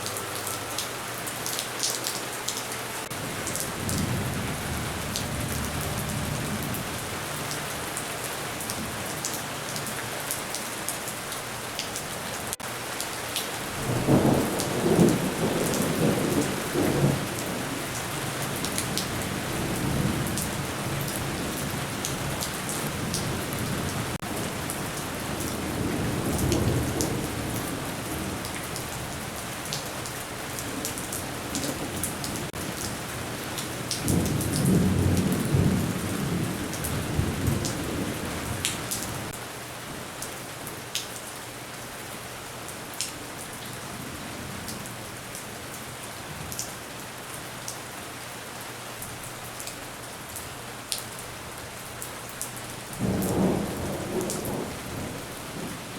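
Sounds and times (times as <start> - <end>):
rain falling: 0.0 - 55.9
thunder rumbling: 13.6 - 39.4, 53.0 - 55.9.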